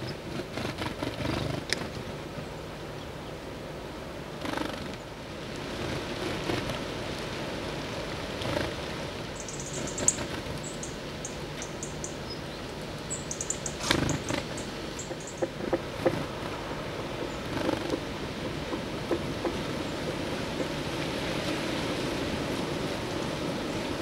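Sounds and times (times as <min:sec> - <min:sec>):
steady outdoor hiss: 0:00.0 - 0:24.0
high bird chirps: 0:09.4 - 0:12.4, 0:13.1 - 0:15.4
sharp knocks and taps: 0:15.0 - 0:16.2, 0:17.2 - 0:20.7.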